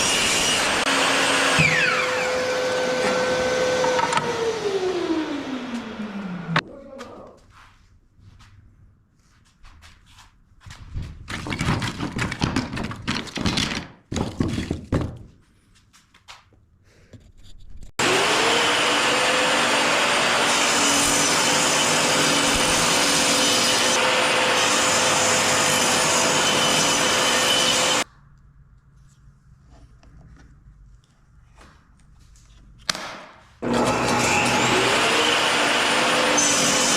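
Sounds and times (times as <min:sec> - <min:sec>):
hand sawing wood: 0:18.0 - 0:28.0, 0:33.6 - 0:36.9.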